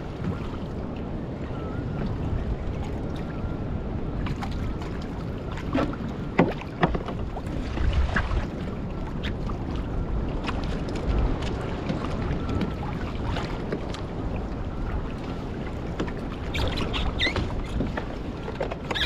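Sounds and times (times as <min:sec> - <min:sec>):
wind rumble on microphone: 0:00.0 - 0:19.0
water slapping against boat hull: 0:04.2 - 0:19.0.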